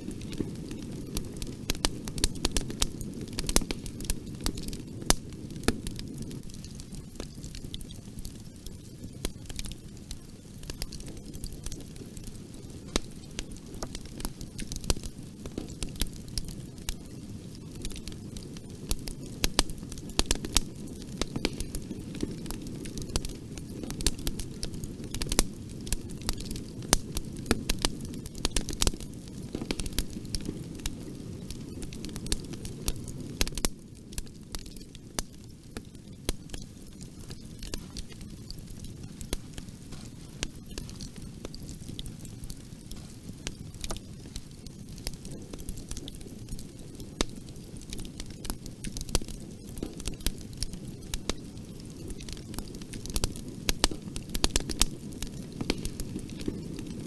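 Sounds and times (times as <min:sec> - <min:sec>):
fire pops and snaps: 0:00.0 - 0:57.0
low rumble of flames: 0:00.0 - 0:57.0.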